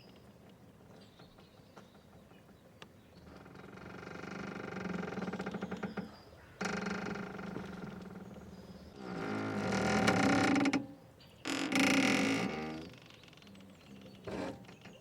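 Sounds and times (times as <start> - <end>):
mooring rope creaking: 3.4 - 15.0.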